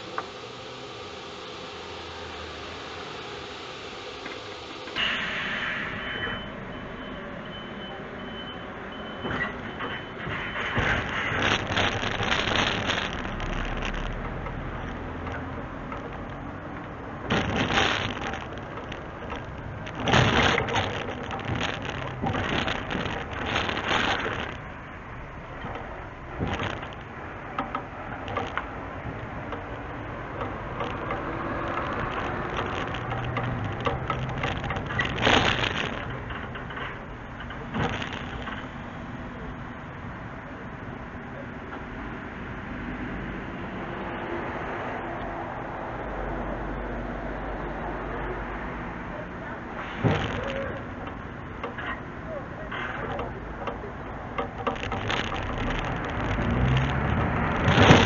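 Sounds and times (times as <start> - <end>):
heavy machinery running: 0.0 - 7.9, 9.0 - 39.0.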